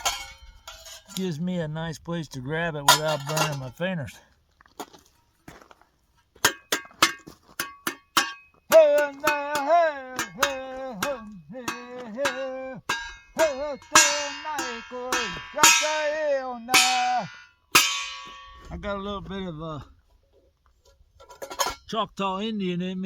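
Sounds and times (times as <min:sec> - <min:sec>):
sharp knocks: 0:06.4 - 0:16.2.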